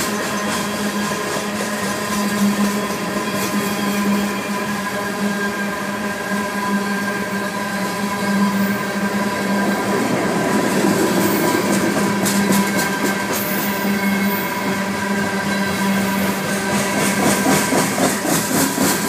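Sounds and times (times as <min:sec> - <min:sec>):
freight train wheels rumbling on rail: 0:00.0 - 0:19.0.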